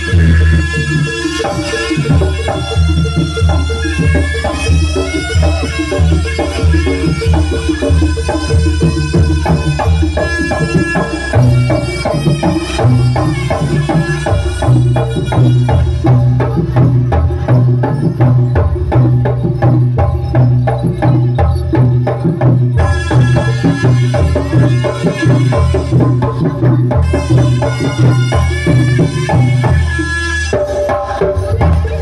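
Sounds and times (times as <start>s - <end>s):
drums beating: 0.0s - 32.0s.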